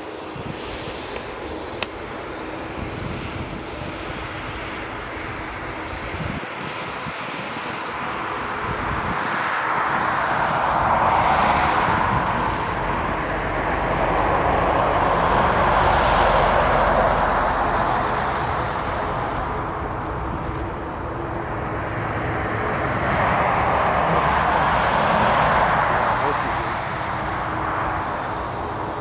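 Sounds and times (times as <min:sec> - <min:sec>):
jet engines running: 0:00.0 - 0:29.0.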